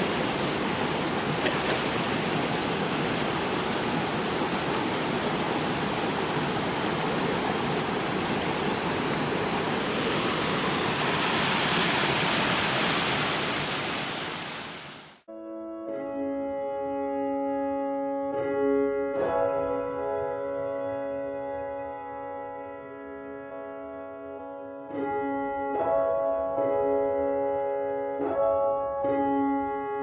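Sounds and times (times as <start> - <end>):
water rushing over rocks: 0.0 - 15.2.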